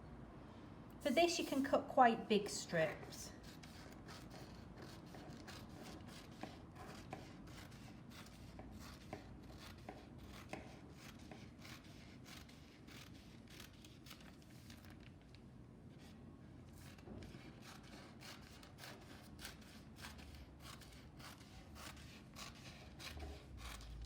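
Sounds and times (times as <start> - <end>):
scissors snipping newspaper: 3.4 - 15.1, 16.8 - 24.0.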